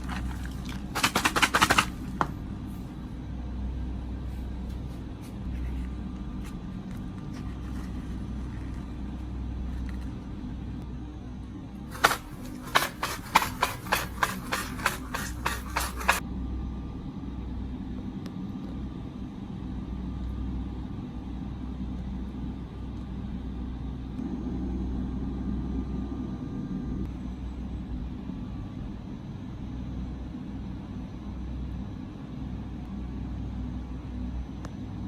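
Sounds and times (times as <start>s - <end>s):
sharp taps: 0.1s - 2.4s, 11.9s - 16.2s.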